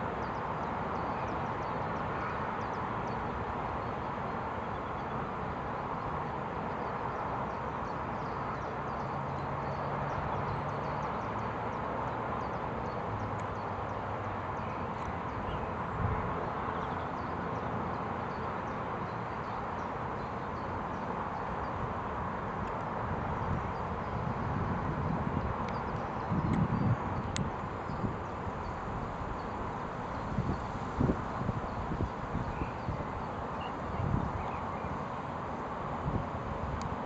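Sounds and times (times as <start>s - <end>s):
steady rushing outdoor noise: 0.0s - 37.0s
faint high ticks: 25.6s - 27.5s, 36.8s - 37.0s.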